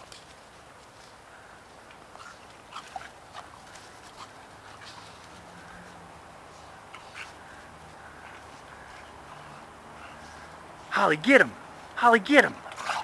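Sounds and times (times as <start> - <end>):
dogs play-fighting: 0.0 - 10.9, 12.6 - 13.0.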